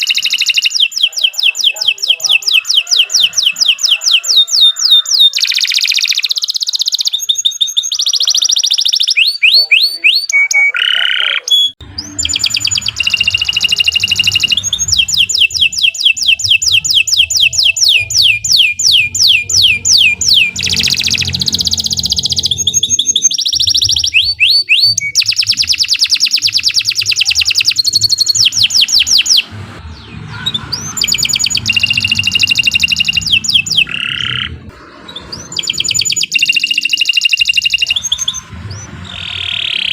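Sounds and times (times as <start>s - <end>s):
canary singing trills: 0.0s - 39.9s
low hum: 11.8s - 24.3s, 27.8s - 39.9s.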